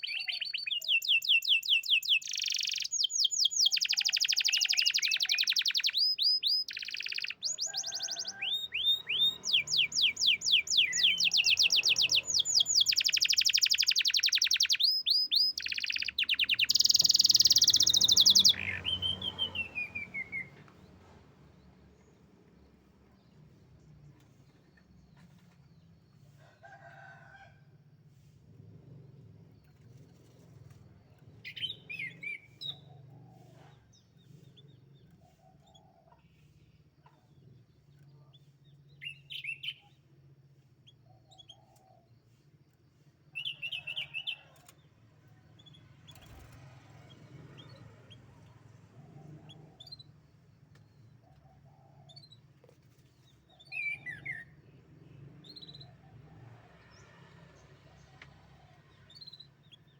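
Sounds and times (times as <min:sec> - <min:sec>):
canary trilling and chirping: 0:00.0 - 0:20.6, 0:43.4 - 0:44.7, 0:45.6 - 0:48.4, 0:49.3 - 0:56.2, 0:59.0 - 0:59.9.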